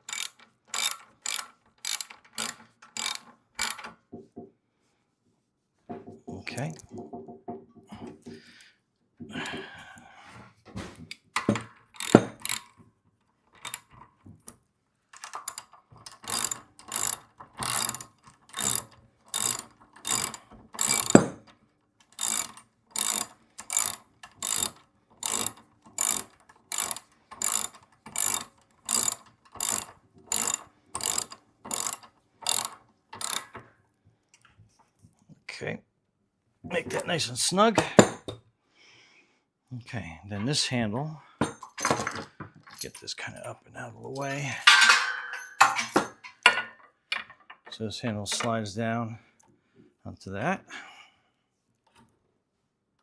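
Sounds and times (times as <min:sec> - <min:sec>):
ratchet wrench ratcheting: 0:00.0 - 0:03.9, 0:12.0 - 0:12.7, 0:13.6 - 0:13.9, 0:15.2 - 0:21.4, 0:22.0 - 0:33.6.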